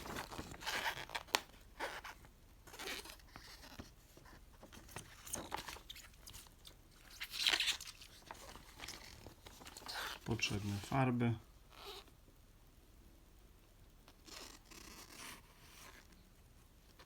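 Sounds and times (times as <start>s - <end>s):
packaging rustling and crinkling: 0.0s - 11.2s.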